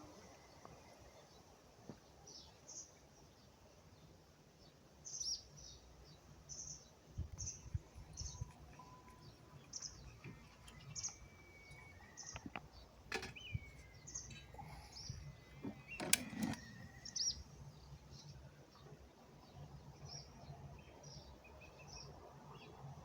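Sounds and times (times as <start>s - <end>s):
small songbirds chirping: 0.0s - 23.0s.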